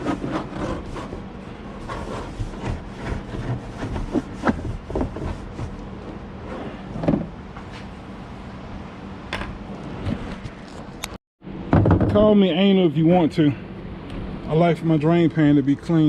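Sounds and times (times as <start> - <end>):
paper towel rubbing: 0.0 - 5.8
steady low hum: 0.0 - 16.0.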